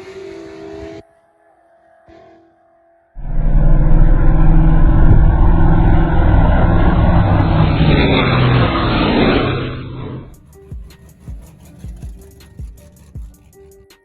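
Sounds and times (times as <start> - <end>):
racing car engines at full throttle: 3.2 - 14.0.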